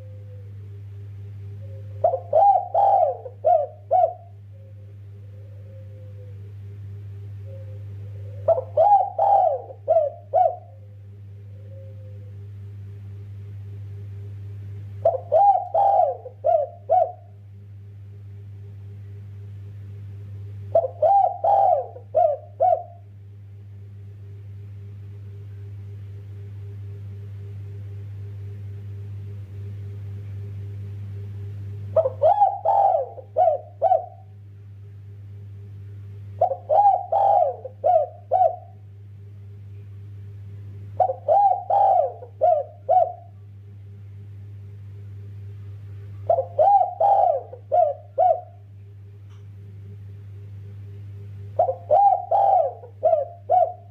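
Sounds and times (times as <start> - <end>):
dove cooing: 0.0 - 6.8, 7.4 - 12.5, 15.0 - 17.4, 20.7 - 23.1, 31.9 - 34.4, 36.4 - 38.8, 40.9 - 43.4, 46.2 - 48.7, 51.5 - 53.9
steady low hum: 0.0 - 53.9.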